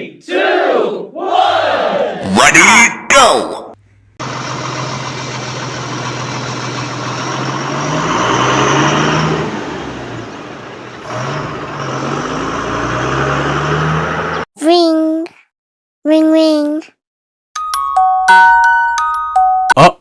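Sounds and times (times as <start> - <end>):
vehicle engine revving: 4.2 - 14.5.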